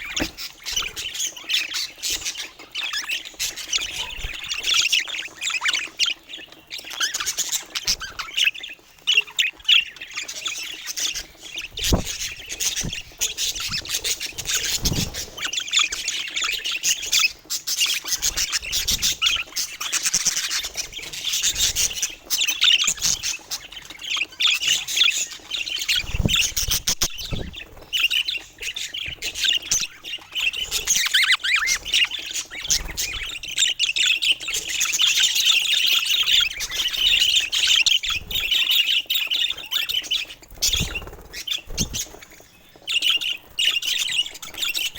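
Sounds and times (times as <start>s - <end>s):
budgerigars chattering: 0.0s - 44.9s
low thumps: 11.8s - 13.9s.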